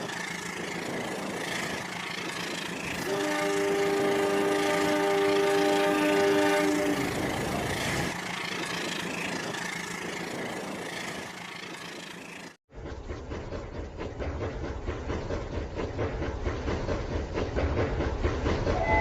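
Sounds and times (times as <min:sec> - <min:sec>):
toy train whistle effect: 0:18.8 - 0:19.0.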